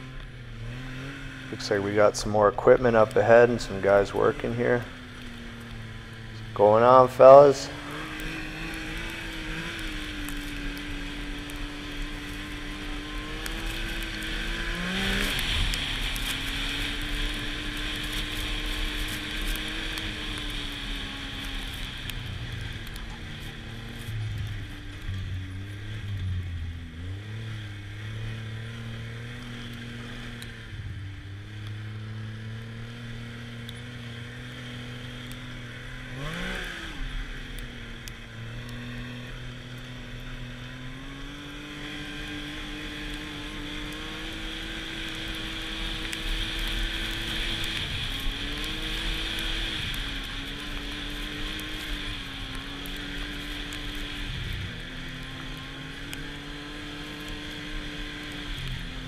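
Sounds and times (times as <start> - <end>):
snowmobile engine revving: 0.0 - 59.0
steady rushing noise: 0.9 - 27.0.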